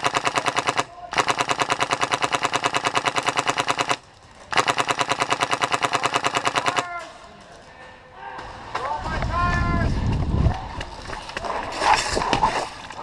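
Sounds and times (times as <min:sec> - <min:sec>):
airsoft gun firing full-auto: 0:00.0 - 0:06.9.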